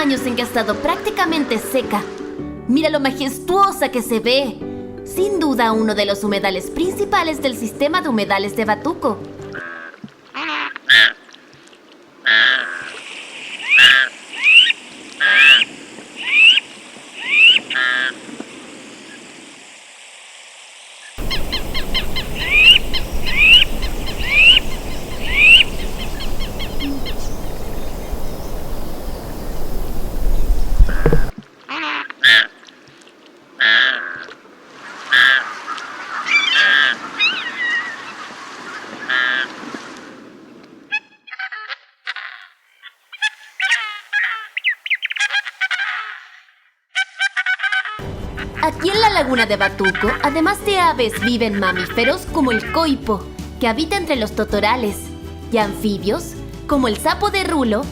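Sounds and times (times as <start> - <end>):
low rumble: 21.2 - 31.3
waterfowl honking: 21.2 - 31.3.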